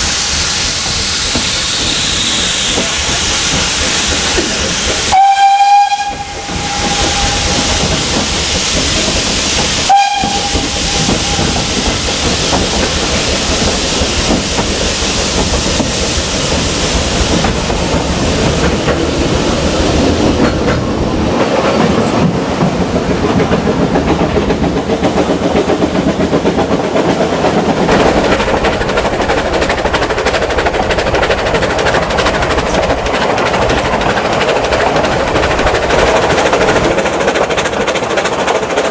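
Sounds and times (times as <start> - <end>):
steam train hissing and rumbling: 0.0 - 38.9
steam locomotive whistle: 5.0 - 8.2, 9.8 - 12.0.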